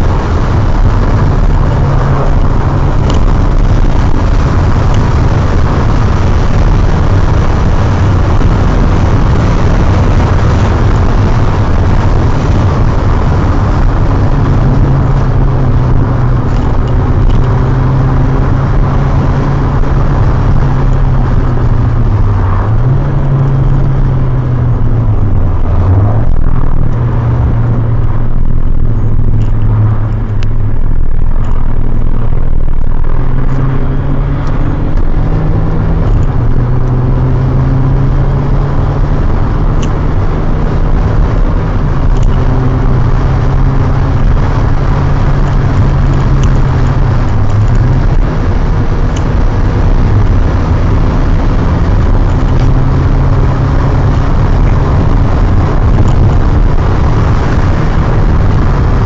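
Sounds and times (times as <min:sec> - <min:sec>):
car engine pulling hard: 0:00.0 - 0:59.0
road and wind noise: 0:00.0 - 0:59.0.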